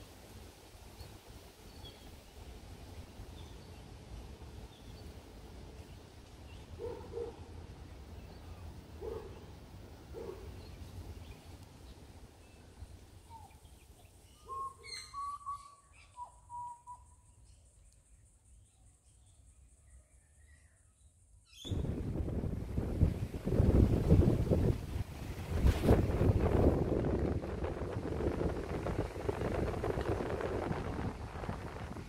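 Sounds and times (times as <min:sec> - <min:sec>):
low doubled hooting bird calls: 0:14.3 - 0:17.2
high whistled bird notes: 0:14.3 - 0:17.3
steady low rumble: 0:21.7 - 0:32.0.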